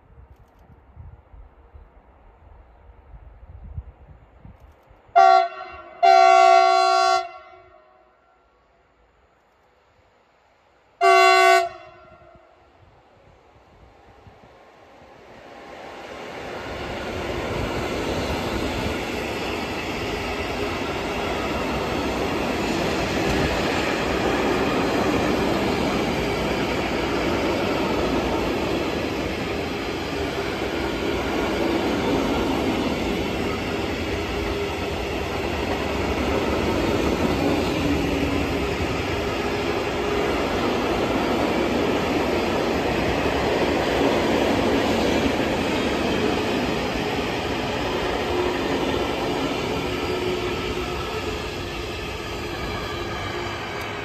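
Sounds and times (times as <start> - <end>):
freight train rolling past: 10.9 - 54.0.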